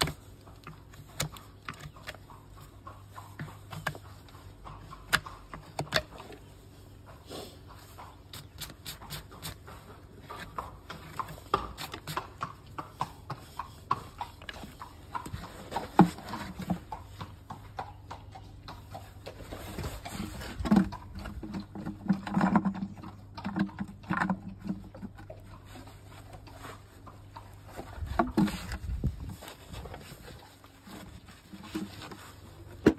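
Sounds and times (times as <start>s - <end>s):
horse hooves clopping on hard floor: 9.0s - 32.9s.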